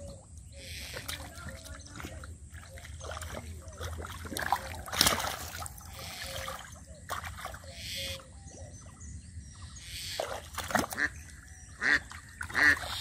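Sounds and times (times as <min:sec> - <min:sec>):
hands splashing in muddy water: 0:00.9 - 0:07.7, 0:10.1 - 0:11.2.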